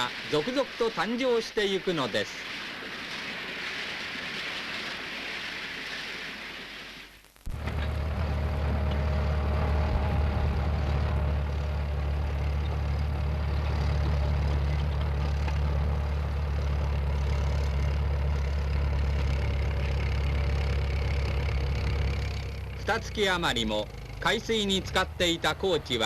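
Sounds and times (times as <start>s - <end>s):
heavy engine running: 7.5s - 26.0s.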